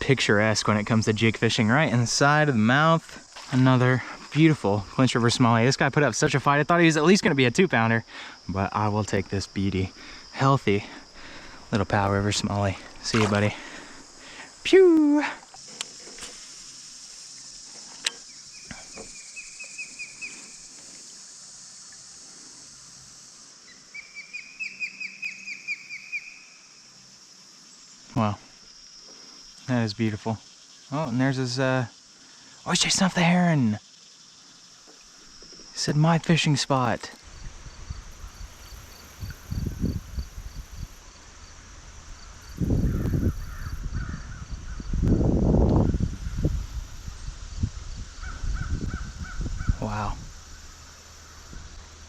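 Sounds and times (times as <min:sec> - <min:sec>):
insects hissing: 0:00.0 - 0:52.0
bird of prey whistled chirps: 0:23.9 - 0:26.5
wind gusts on microphone: 0:37.2 - 0:41.0, 0:41.8 - 0:50.8, 0:51.4 - 0:52.0
faint bird calls: 0:42.8 - 0:44.9.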